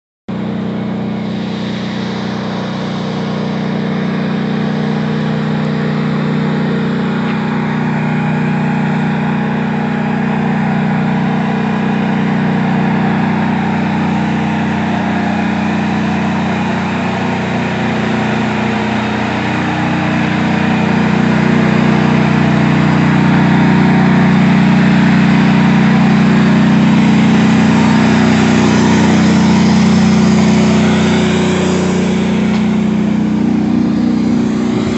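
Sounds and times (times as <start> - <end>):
tank engine running: 0.3 - 34.9.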